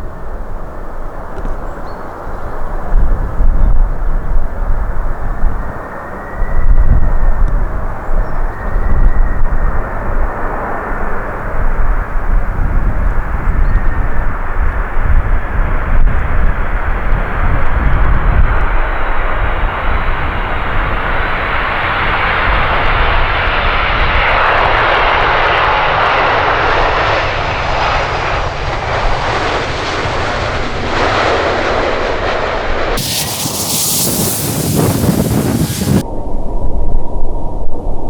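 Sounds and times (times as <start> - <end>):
jet engines roaring: 5.0 - 13.4, 14.0 - 36.1
loud even hiss: 33.0 - 36.1.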